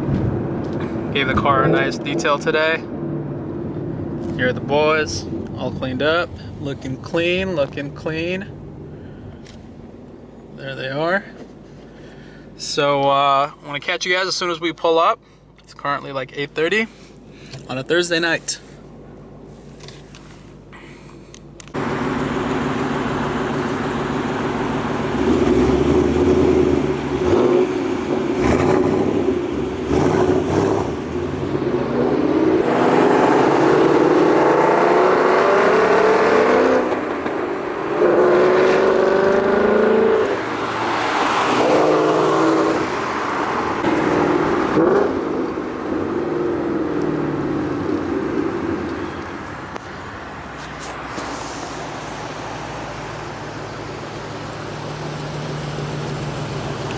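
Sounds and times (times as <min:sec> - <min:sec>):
car engine accelerating hard: 0:21.6 - 0:56.9.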